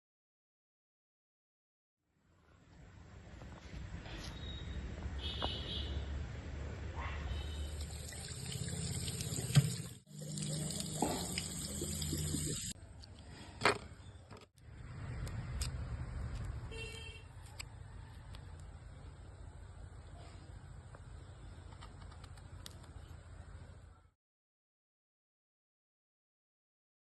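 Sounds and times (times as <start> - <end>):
water running and splashing: 7.5 - 12.8.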